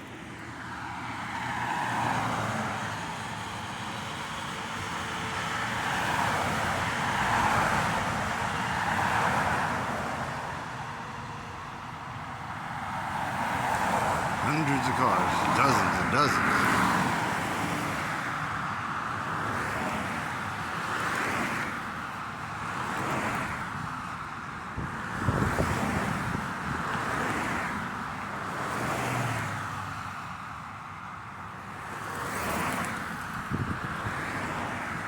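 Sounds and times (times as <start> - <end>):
cars passing: 0.0 - 35.0.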